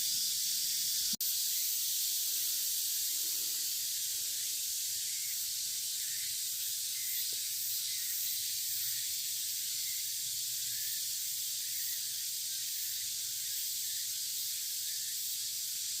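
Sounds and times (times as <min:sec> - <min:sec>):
high-pitched outdoor hiss: 0:00.0 - 0:16.0.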